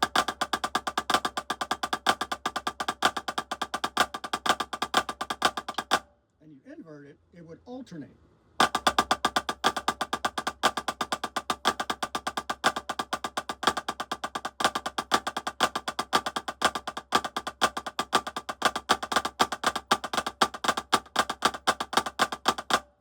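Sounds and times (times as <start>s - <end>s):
drumsticks playing rudiment: 0.0s - 6.1s.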